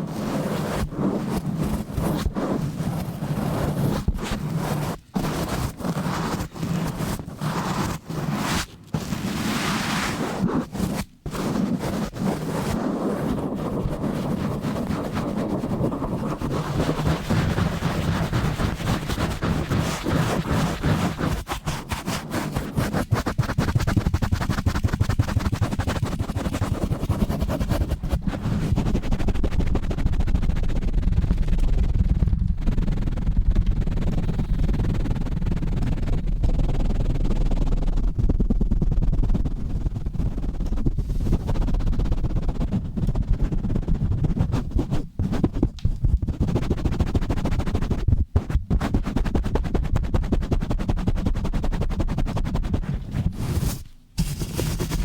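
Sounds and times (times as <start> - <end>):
rubbing on microphone: 0.0 - 55.0
microphone handling rumble: 28.0 - 46.5.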